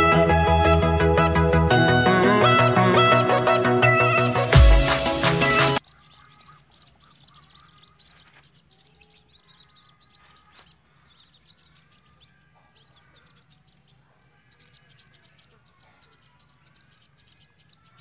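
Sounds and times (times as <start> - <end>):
birds chirping: 3.9 - 18.0.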